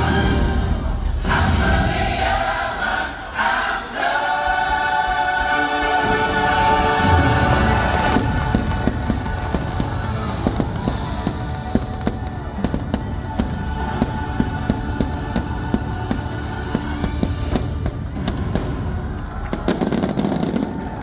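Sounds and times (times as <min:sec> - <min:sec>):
orchestral music: 0:00.0 - 0:21.0
fireworks bangs and crackles: 0:06.0 - 0:21.0.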